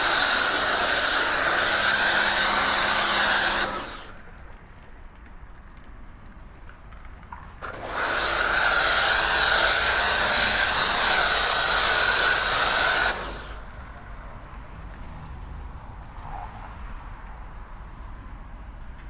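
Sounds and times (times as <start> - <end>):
pressure washer motor whine: 0.0 - 4.2, 7.6 - 13.6
water spray hiss: 0.0 - 4.2, 7.6 - 13.6.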